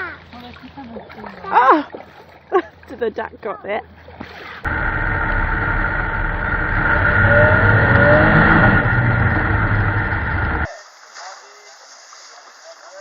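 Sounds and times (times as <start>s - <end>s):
vehicle rumble and roar: 4.6s - 10.7s
faint rising whine: 4.7s - 10.7s.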